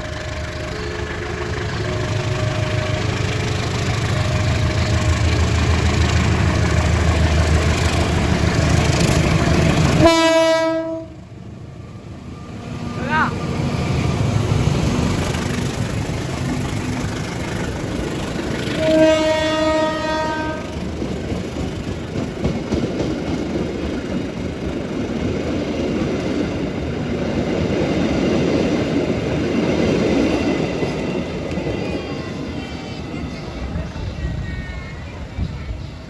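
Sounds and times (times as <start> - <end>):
train rumble and wheel noise: 0.0 - 36.0
train horn blast: 9.8 - 11.2, 18.6 - 20.8.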